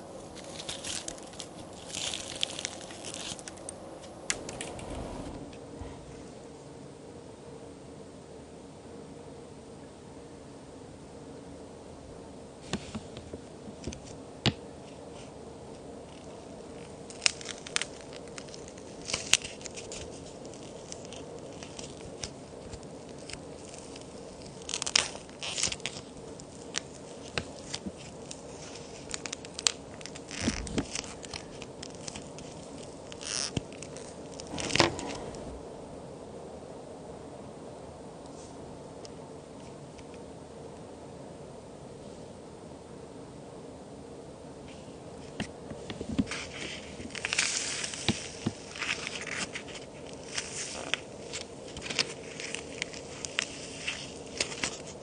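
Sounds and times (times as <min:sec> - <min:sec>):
faint steady hiss: 0:00.0 - 0:55.0
plaster cookies snapping and crumbling: 0:00.3 - 0:03.8, 0:16.2 - 0:34.8.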